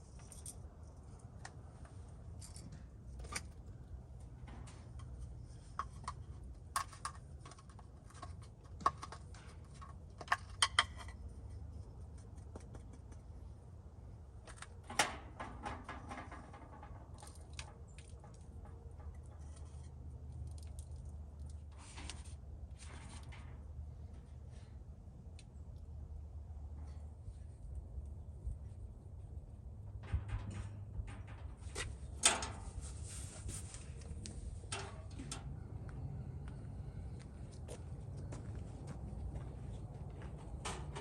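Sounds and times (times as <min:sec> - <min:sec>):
steady low rumble: 0:22.5 - 0:41.0.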